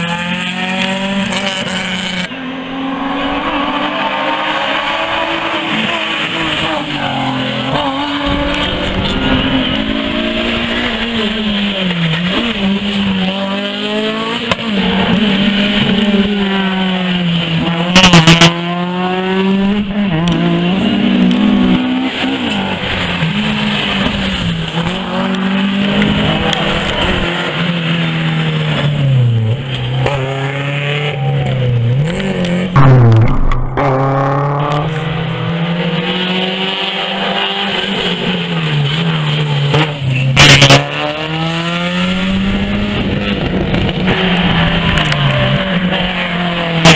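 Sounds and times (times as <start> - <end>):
rally car engine revving: 0.0 - 46.9
very loud blasts: 32.8 - 34.8.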